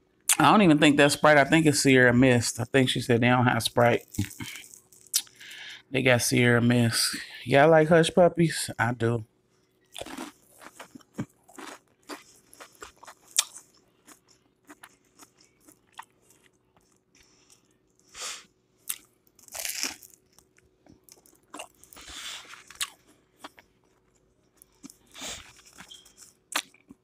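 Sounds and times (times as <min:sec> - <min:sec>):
person eating crunchy food: 0:03.7 - 0:05.7, 0:09.8 - 0:27.0.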